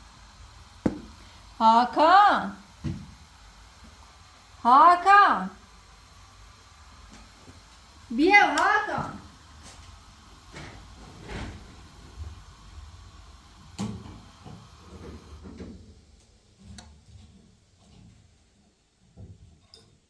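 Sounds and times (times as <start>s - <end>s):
light knocks and thuds: 0.8s - 1.2s.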